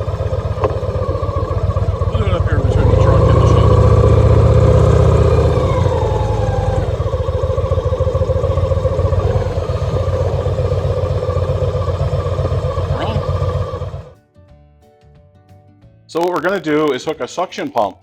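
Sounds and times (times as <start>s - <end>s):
motorcycle engine idling: 0.0s - 14.2s.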